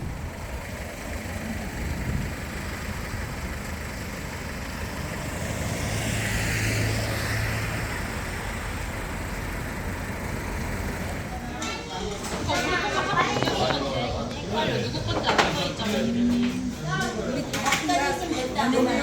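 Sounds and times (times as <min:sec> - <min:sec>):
road vehicle noise: 0:00.0 - 0:19.0
vehicle passing: 0:04.7 - 0:17.3.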